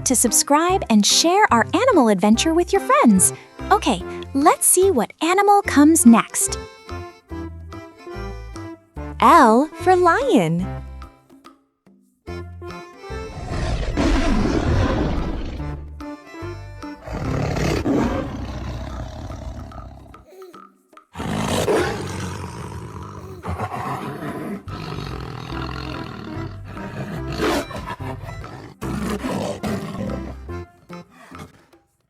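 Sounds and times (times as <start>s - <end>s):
background music: 0.0s - 32.0s
lion roaring: 13.2s - 15.8s, 17.0s - 20.3s, 21.2s - 30.5s.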